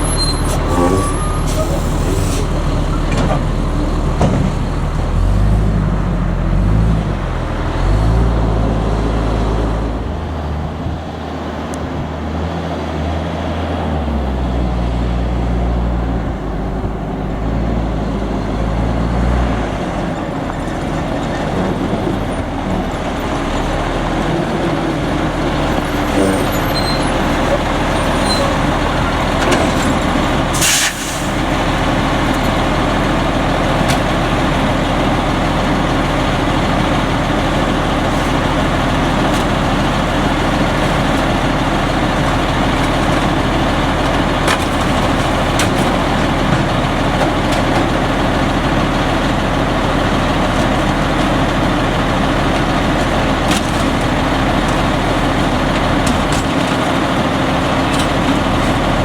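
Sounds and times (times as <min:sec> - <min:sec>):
garbage truck diesel engine: 0:00.0 - 0:59.0
air brake hiss: 0:00.5 - 0:02.6, 0:30.6 - 0:31.4.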